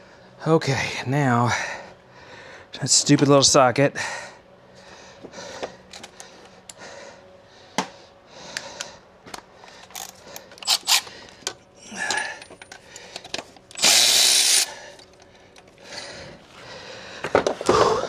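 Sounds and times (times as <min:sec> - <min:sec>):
metal parts clicking and clinking: 0:09.8 - 0:15.8.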